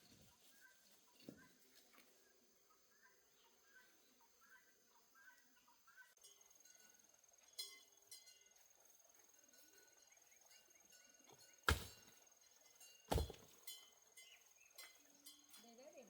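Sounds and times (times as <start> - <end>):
faint bird chirps: 0.0 - 16.0
hoe chopping into ground: 11.6 - 12.2, 13.1 - 13.6.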